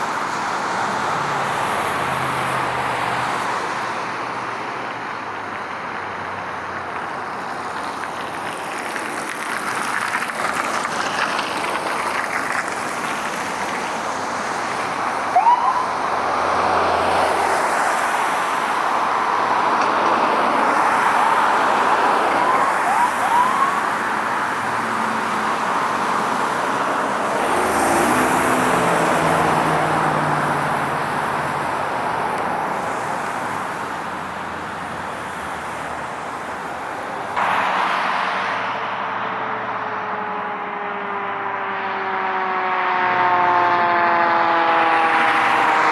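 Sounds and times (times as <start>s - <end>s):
road traffic noise: 0.0s - 45.9s
siren chirps: 15.2s - 17.5s, 21.3s - 24.6s, 39.3s - 45.9s.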